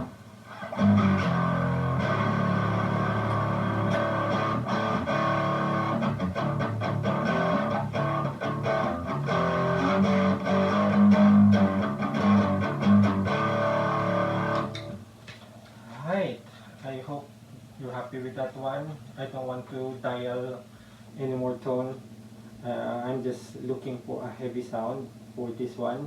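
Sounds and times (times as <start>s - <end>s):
distorted electric guitar riffs: 0.0s - 15.0s.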